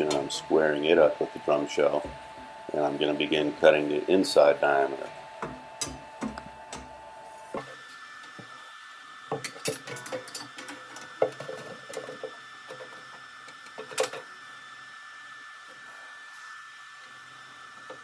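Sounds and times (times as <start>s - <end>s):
steady hum: 0.0s - 18.0s
metal parts clicking and knocking: 9.4s - 12.9s.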